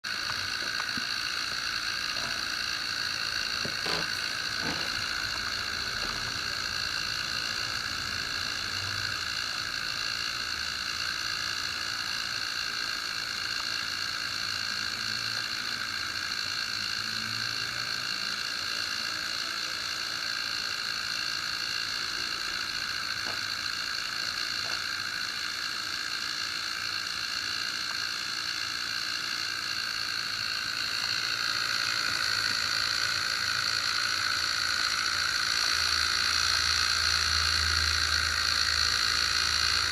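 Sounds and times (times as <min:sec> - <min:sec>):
hair dryer running: 0:00.1 - 0:09.9, 0:28.9 - 0:39.9.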